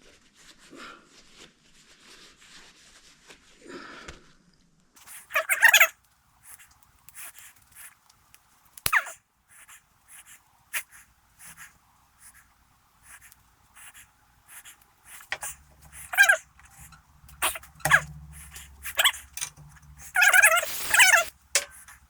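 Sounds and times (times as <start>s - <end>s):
dog sniffing: 6.4s - 8.0s, 9.0s - 22.0s
falling squeak: 15.2s - 22.0s
dog whining: 16.0s - 16.4s.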